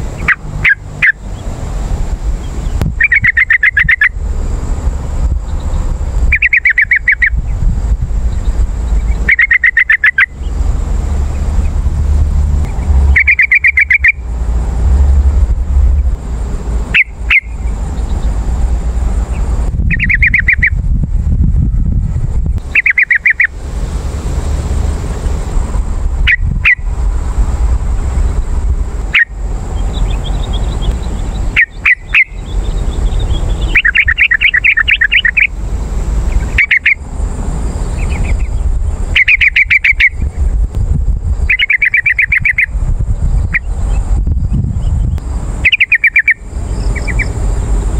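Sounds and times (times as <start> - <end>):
steady low rumble: 0.0 - 47.9
bird bubbly chattering: 2.6 - 4.2, 6.3 - 7.4, 8.4 - 10.6, 13.1 - 14.3, 16.9 - 18.3, 19.9 - 20.8, 22.6 - 23.6, 29.1 - 35.6, 36.3 - 37.0, 41.4 - 42.7, 45.6 - 47.4.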